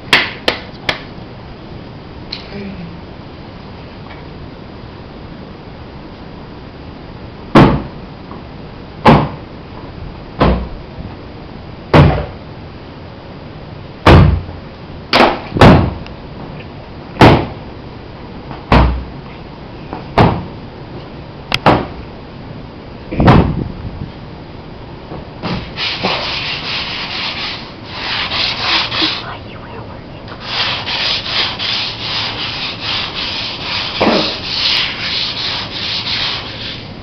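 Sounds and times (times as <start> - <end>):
loud sharp knocks: 7.5 - 7.9, 9.0 - 9.4, 10.4 - 10.7, 11.9 - 12.4, 14.0 - 14.5, 15.1 - 16.0, 17.2 - 17.6, 18.7 - 19.1, 20.2 - 20.5, 21.6 - 22.0, 23.2 - 23.6.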